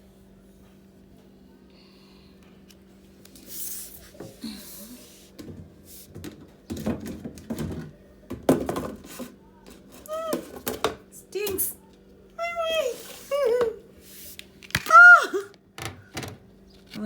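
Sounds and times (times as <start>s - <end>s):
plastic knocks and clatter: 5.4s - 9.3s.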